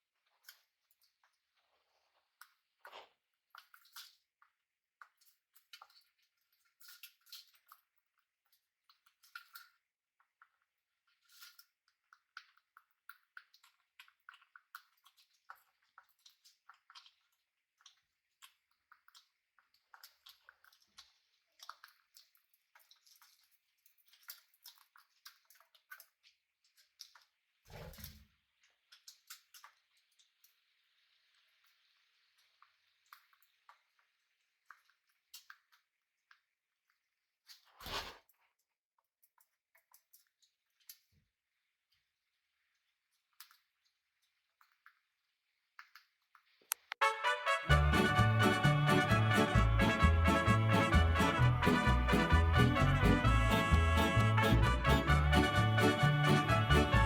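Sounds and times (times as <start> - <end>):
parrots cracking seeds: 11.2 - 26.2.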